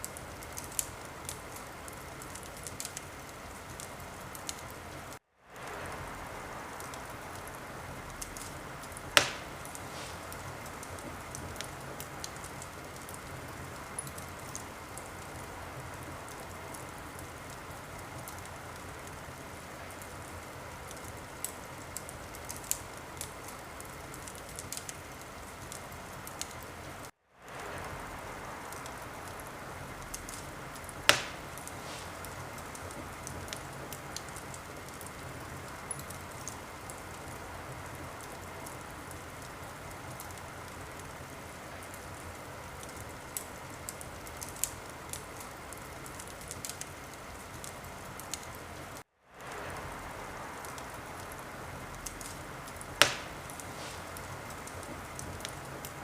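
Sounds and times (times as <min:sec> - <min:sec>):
wood fire crackling: 0:00.0 - 0:56.0
loud pop of fire: 0:08.2 - 0:13.1, 0:30.1 - 0:34.3, 0:53.0 - 0:55.9.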